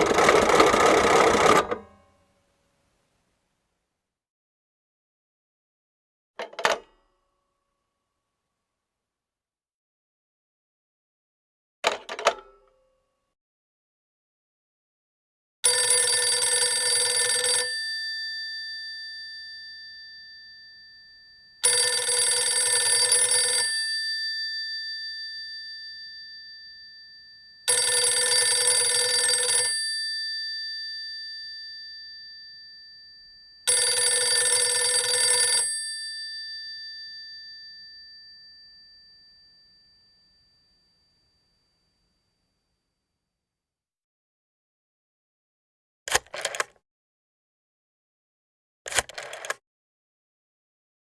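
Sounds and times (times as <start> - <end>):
telephone bell ringing: 0.0 - 1.8, 15.7 - 40.3.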